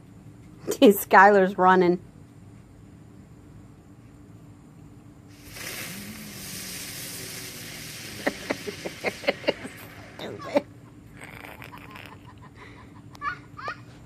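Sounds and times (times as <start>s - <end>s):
firework crackling: 5.3s - 10.6s
firework hissing: 5.3s - 10.6s.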